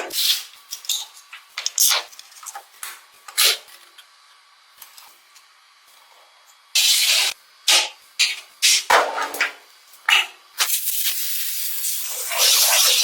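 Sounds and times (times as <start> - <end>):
spraying hiss bursts: 10.6 - 13.0.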